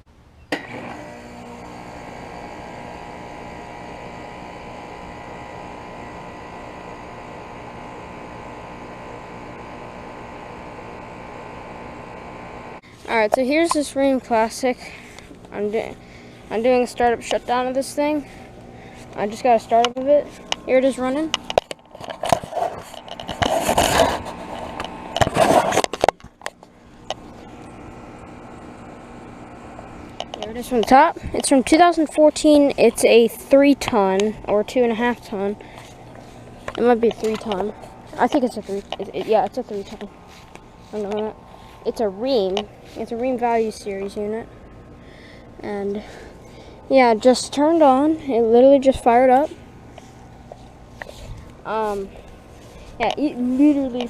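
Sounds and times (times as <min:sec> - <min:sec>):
air conditioner humming: 0:00.7 - 0:54.0
loud scraping noises: 0:12.8 - 0:28.4.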